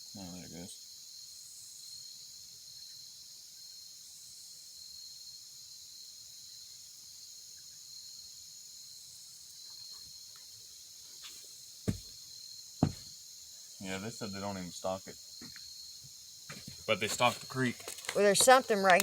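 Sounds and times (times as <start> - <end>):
insect chorus buzzing: 0.0 - 19.0.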